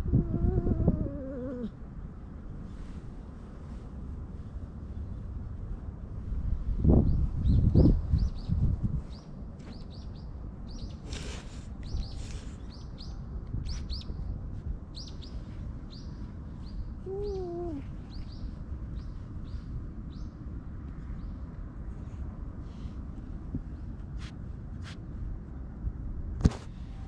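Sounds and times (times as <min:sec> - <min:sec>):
steady low rumble: 0:00.0 - 0:11.0
small birds chirping: 0:07.1 - 0:14.3, 0:15.0 - 0:20.4.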